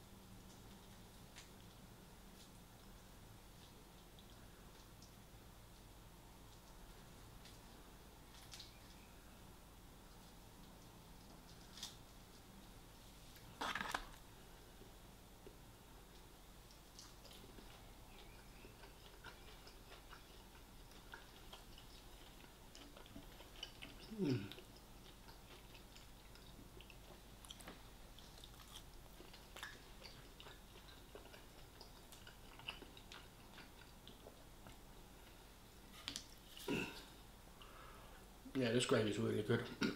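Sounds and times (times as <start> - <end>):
close-up chewing: 14.8 - 37.8.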